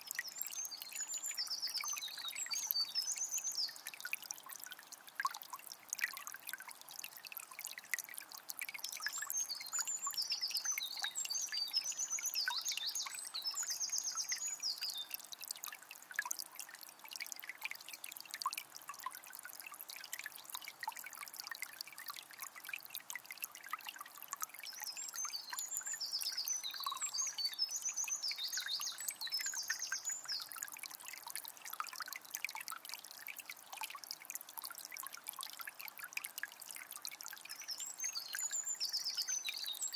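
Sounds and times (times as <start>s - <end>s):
songbird singing: 0.0s - 4.0s, 8.9s - 15.3s, 24.7s - 30.6s, 37.4s - 39.9s
river trickling and babbling: 0.0s - 39.9s.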